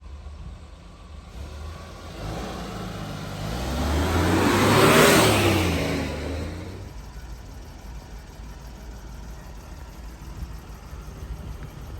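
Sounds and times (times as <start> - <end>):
vehicle driving past: 1.3 - 7.0.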